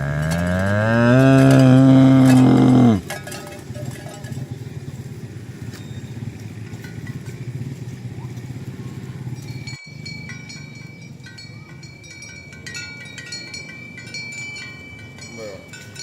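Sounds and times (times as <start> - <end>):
cow mooing: 0.0 - 3.1.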